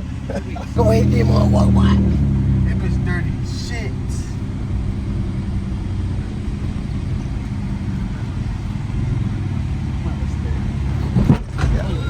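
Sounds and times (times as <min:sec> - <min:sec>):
car engine exhaust rumble: 0:00.0 - 0:12.0.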